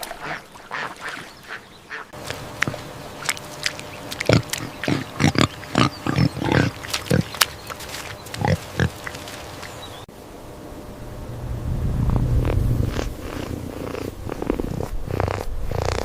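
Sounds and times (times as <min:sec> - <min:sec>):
pigs grunting: 0:02.2 - 0:09.6, 0:12.4 - 0:16.0.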